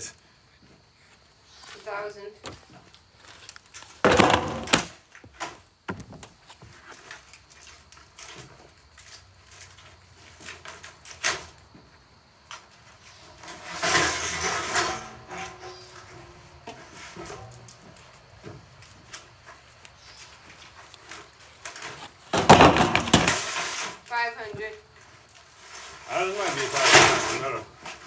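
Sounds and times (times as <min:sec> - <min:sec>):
sharp knocks of metal and wood: 0:04.0 - 0:06.3, 0:22.3 - 0:23.5.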